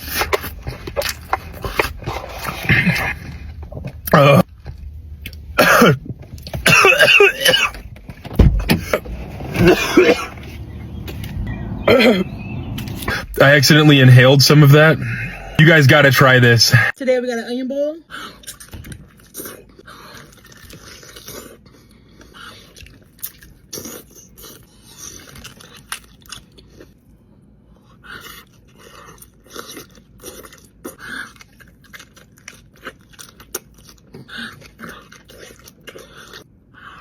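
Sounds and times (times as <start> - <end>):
person biting and chewing: 0.0 - 5.5, 18.3 - 27.0, 27.9 - 37.0.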